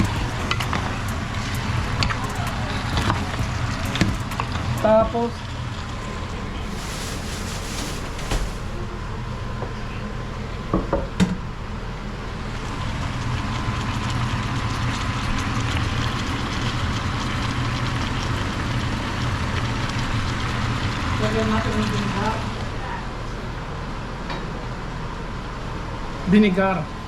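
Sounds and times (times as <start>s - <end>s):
chicken sizzling in a pot: 12.4s - 22.6s.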